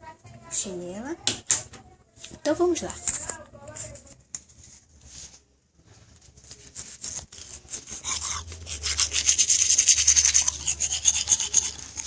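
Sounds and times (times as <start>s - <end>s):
toothbrush scrubbing teeth: 7.0s - 12.0s.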